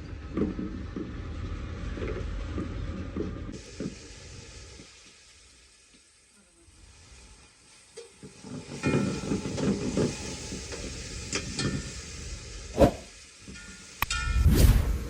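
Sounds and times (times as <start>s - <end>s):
food sizzling in a pot: 3.6s - 14.0s.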